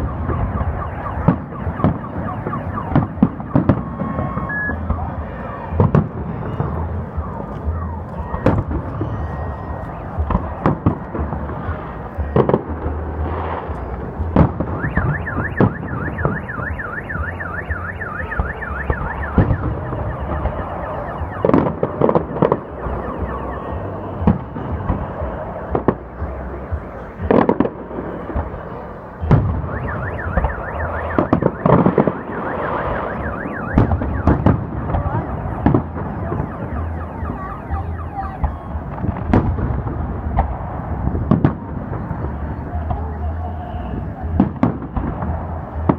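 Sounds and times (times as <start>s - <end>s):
car alarm warbling: 0.0s - 5.3s, 14.6s - 24.7s, 29.2s - 38.9s
firework bangs: 0.0s - 45.9s.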